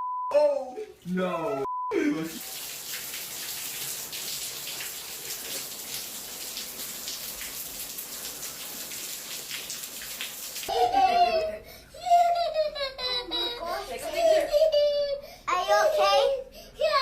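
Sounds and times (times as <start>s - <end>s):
water spraying and splattering: 2.2s - 10.8s.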